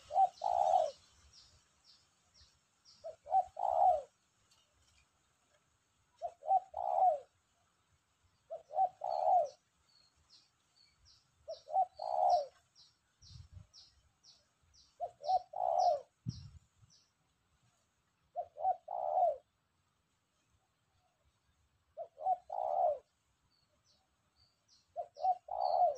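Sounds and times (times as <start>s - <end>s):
dove cooing: 0.0s - 1.2s, 2.9s - 4.2s, 6.2s - 7.4s, 8.5s - 9.7s, 11.4s - 12.6s, 15.0s - 16.5s, 18.3s - 19.6s, 21.9s - 23.1s, 24.9s - 25.9s
small bird chirping: 0.0s - 5.2s, 8.4s - 17.2s, 21.4s - 25.9s.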